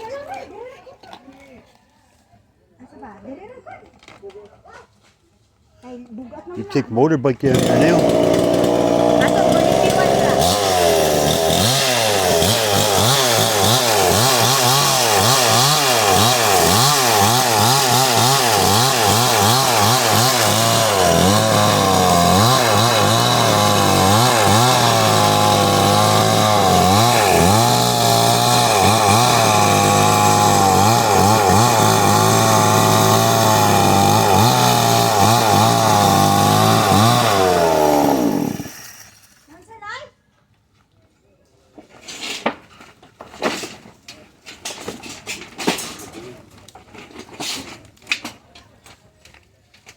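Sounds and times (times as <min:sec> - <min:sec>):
chainsaw running hard: 0:07.4 - 0:39.4.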